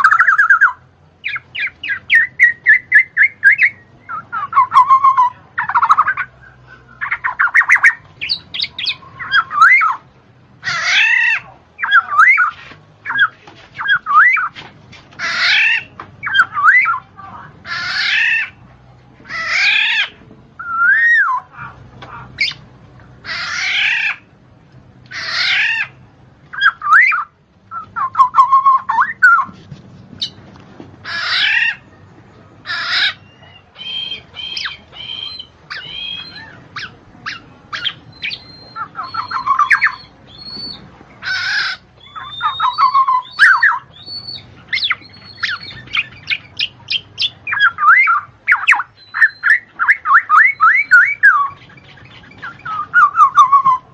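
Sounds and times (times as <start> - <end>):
bird squawking and chirping: 0.0 - 18.6, 19.2 - 24.3, 25.1 - 29.6, 30.2 - 30.4, 31.0 - 31.9, 32.6 - 53.9.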